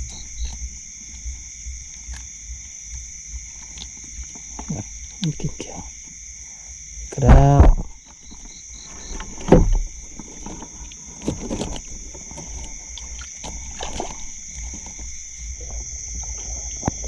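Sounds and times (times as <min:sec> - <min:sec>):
insects and frogs chorus: 0:00.0 - 0:17.0
water splashing: 0:07.2 - 0:16.6.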